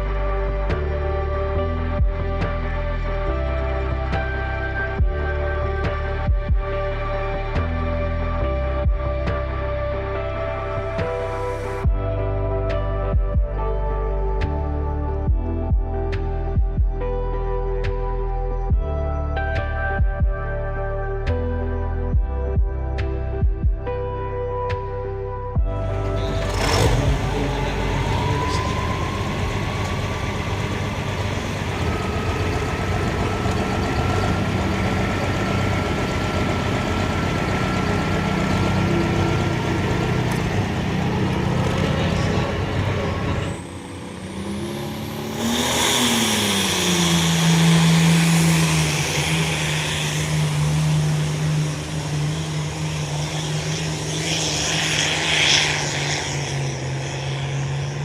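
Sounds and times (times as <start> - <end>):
heavy vehicle engines running: 0.0 - 17.0, 25.6 - 58.0
engine revving: 25.6 - 58.0.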